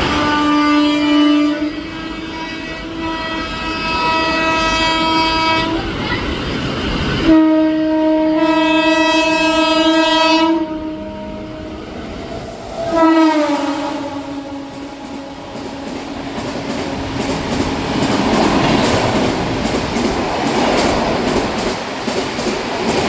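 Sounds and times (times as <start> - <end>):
locomotive horn blasts: 0.0 - 5.9, 7.3 - 17.1
train rumble: 0.0 - 23.0.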